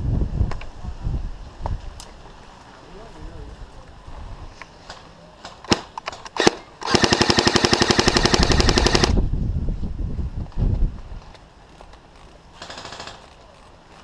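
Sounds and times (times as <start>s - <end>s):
airsoft gun shots: 5.7s - 9.2s.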